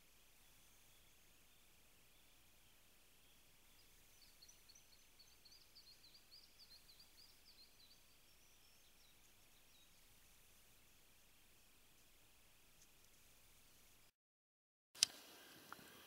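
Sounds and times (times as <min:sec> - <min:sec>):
songbird chirping: 0:00.0 - 0:14.1
steady background hiss: 0:00.0 - 0:14.1, 0:15.0 - 0:16.0.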